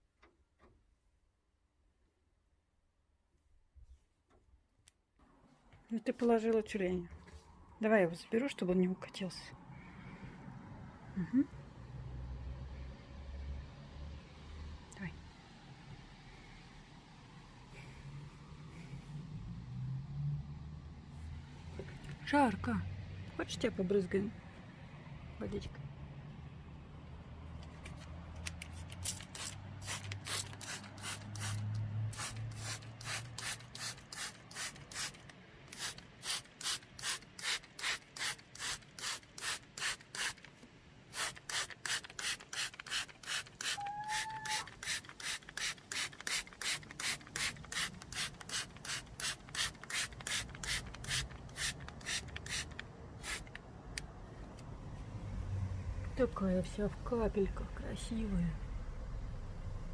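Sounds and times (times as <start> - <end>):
spray bottle hissing: 28.8 - 40.5, 41.1 - 53.6
rising squeak: 43.7 - 44.7.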